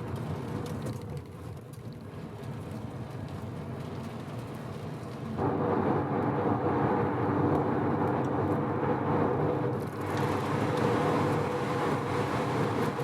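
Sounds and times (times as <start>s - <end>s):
road noise: 0.0s - 13.0s
rotary car engine running: 5.4s - 13.0s.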